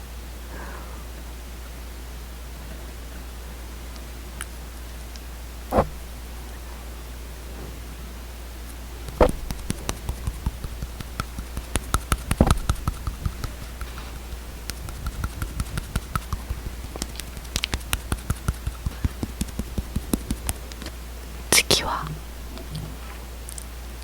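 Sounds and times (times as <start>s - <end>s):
faint low hum: 0.0s - 24.0s
sharp little clicks and taps: 9.1s - 20.9s.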